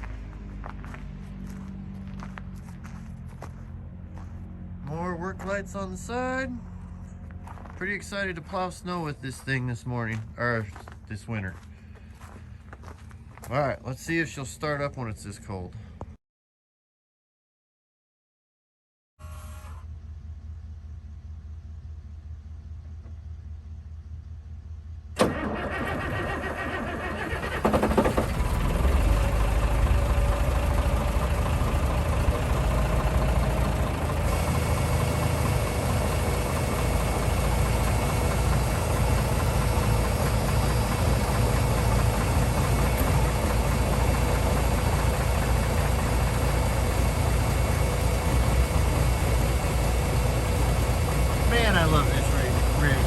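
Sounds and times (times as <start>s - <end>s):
diesel engine idling: 0.0s - 16.0s, 19.8s - 53.0s
starter cranking: 25.2s - 32.6s.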